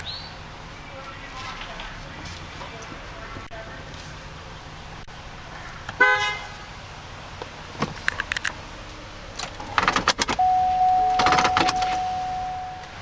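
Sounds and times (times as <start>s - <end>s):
steady electronic tone: 10.4s - 13.0s
two-tone car horn toot: 10.4s - 13.0s.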